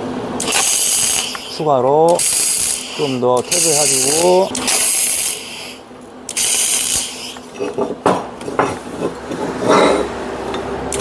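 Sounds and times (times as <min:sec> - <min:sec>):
welding arc crackle: 0:00.4 - 0:07.5.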